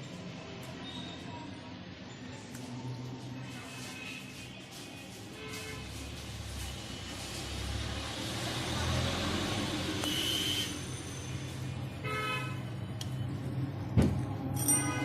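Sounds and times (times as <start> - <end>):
vehicle horns tooting: 10.0 - 10.9, 12.0 - 12.7.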